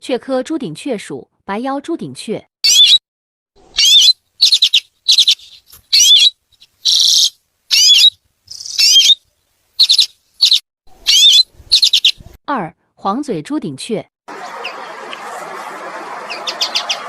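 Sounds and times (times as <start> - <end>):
bird twittering calls: 2.7 - 3.0, 3.7 - 9.2, 9.8 - 12.2, 16.3 - 17.0
bird buzzy call: 3.6 - 9.2, 9.8 - 12.2, 16.2 - 17.0.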